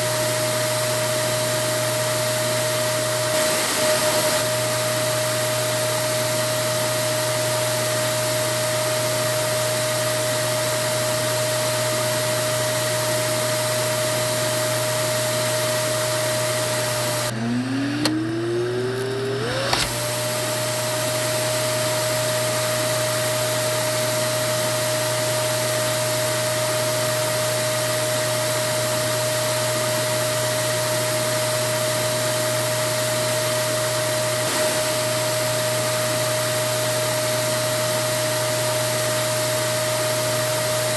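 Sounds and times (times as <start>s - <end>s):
vacuum cleaner motor whining: 0.0s - 40.9s.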